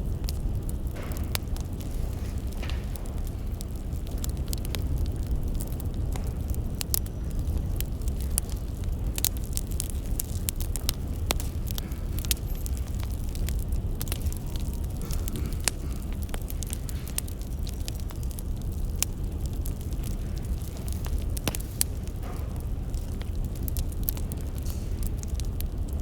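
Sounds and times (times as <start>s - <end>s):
firewood crackling and popping: 0.0s - 26.0s.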